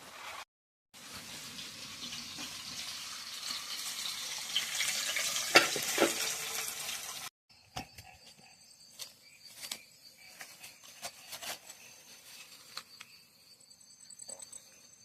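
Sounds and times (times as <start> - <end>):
insects chirping: 7.5 - 15.0.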